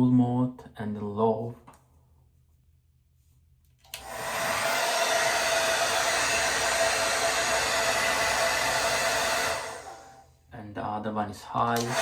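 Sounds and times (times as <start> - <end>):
hair dryer switch click: 3.8 - 4.4, 11.8 - 12.0
hair dryer running: 3.9 - 10.2, 11.8 - 12.0.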